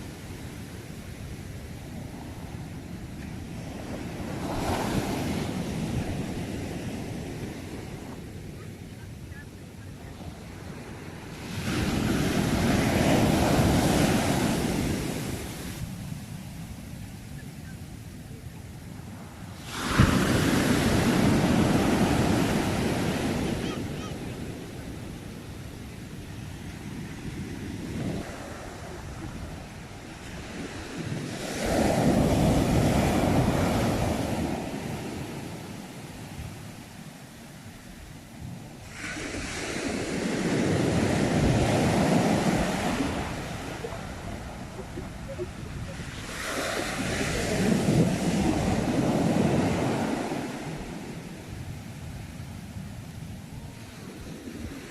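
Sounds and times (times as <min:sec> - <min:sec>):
wave breaking and washing in: 0:00.0 - 0:54.9
wind on microphone: 0:00.0 - 0:54.9
sea wave breaking on shore: 0:19.5 - 0:24.1, 0:38.8 - 0:51.2.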